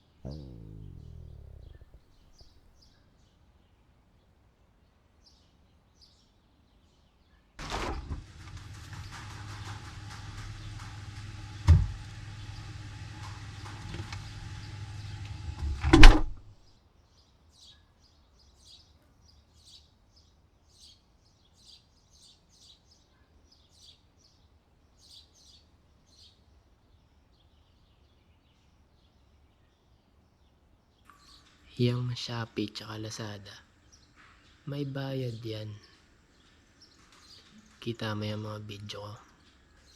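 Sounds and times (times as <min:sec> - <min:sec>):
heavy thumps: 0:00.2 - 0:02.0.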